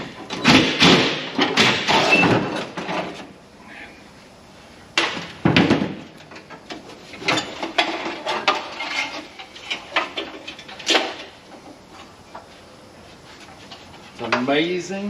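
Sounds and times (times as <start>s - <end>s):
metal clunks and rattles: 0.0s - 3.3s, 5.0s - 12.1s.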